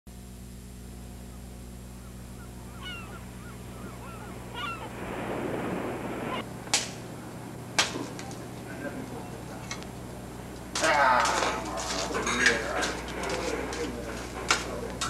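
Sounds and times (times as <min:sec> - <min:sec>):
steady low hum: 0:00.1 - 0:15.0
honk-like bird calls: 0:01.2 - 0:06.4
rush of noise: 0:03.6 - 0:06.5.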